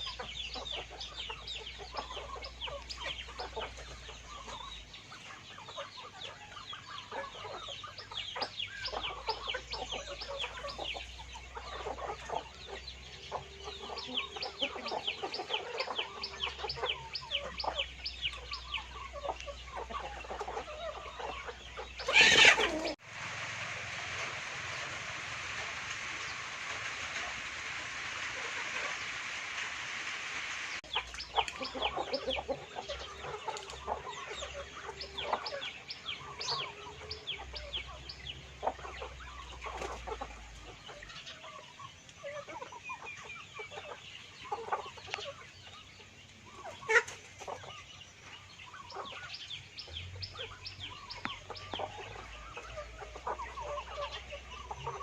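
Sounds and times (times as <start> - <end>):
chickens clucking: 0.0 - 55.0
steady hiss: 23.0 - 41.0.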